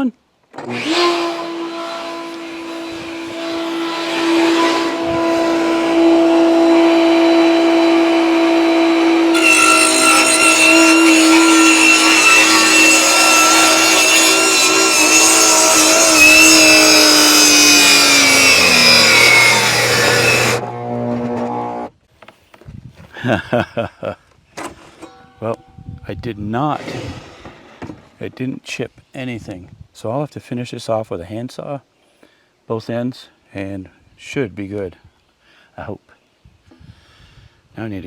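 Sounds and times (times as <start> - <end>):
saw blade cutting whine: 0.6 - 21.9
table saw motor hum: 0.6 - 21.9.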